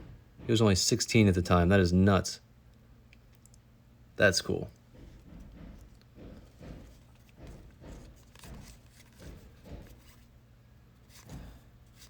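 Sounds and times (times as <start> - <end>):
cards sliding and tapping: 5.8 - 10.3, 11.0 - 12.0.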